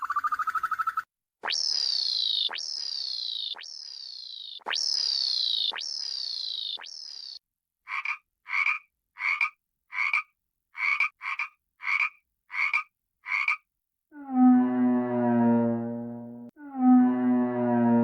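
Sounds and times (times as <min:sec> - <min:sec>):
long low-pitched tone: 0:14.2 - 0:18.0.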